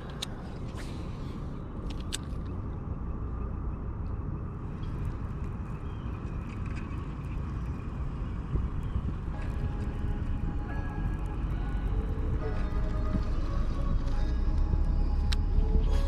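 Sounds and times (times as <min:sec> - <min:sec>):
wind rumbling on microphone: 0:00.0 - 0:16.0
light clicks: 0:01.8 - 0:02.6.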